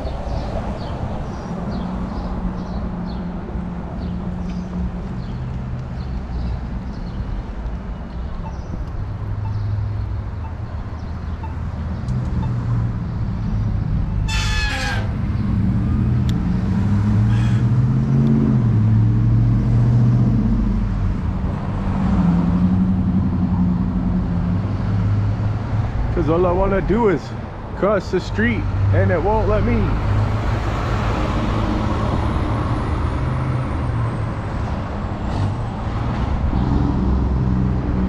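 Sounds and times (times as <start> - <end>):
vehicles passing: 0.0 - 38.0
high-pitched squeal: 14.1 - 16.1.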